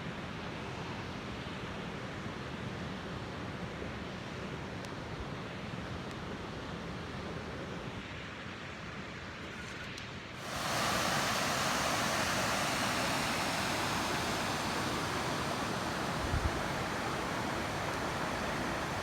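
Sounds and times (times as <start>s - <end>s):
waterfall rushing: 10.4s - 19.0s.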